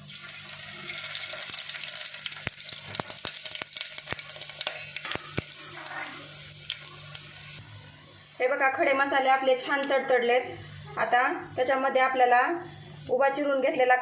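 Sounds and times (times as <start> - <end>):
spices sizzling in hot oil: 0.0 - 8.3
crackles and pops of oil: 1.4 - 7.3.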